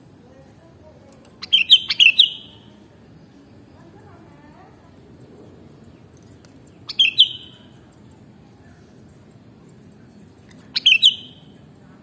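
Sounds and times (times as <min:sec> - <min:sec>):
bird call phrase: 0:01.4 - 0:02.7, 0:06.9 - 0:07.7, 0:10.8 - 0:11.4.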